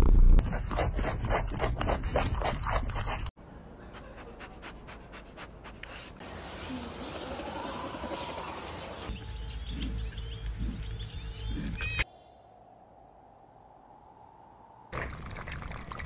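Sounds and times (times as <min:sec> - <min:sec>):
small birds chirping: 0:06.2 - 0:12.4.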